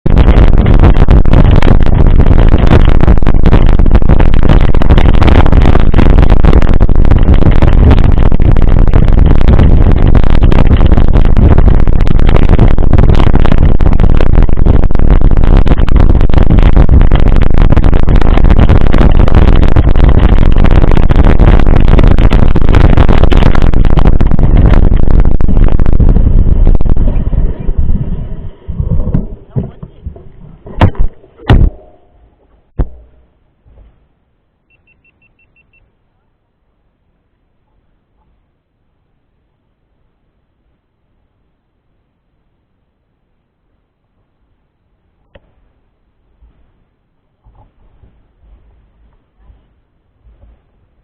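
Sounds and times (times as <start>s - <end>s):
wind buffeting microphone: 0.0s - 33.9s.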